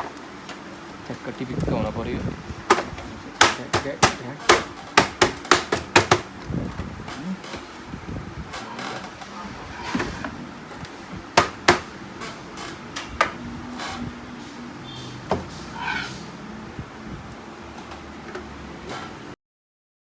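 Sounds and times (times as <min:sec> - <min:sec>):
plastic parts clicking and knocking: 0:02.7 - 0:07.8.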